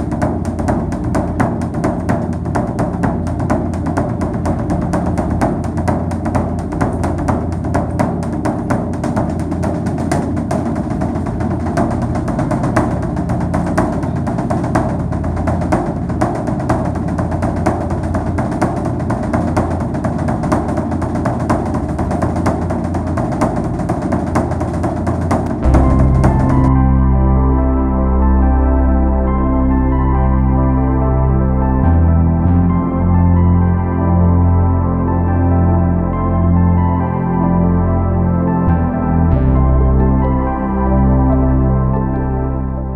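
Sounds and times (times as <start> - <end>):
rapid percussive tapping: 0.0 - 26.8
steady low hum: 0.0 - 32.2.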